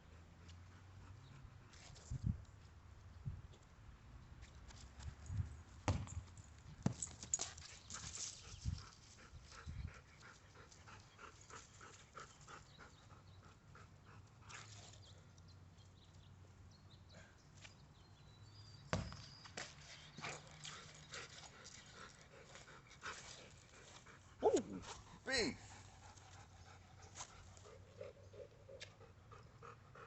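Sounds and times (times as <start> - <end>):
soft evenly spaced dog steps: 19.4 - 30.0.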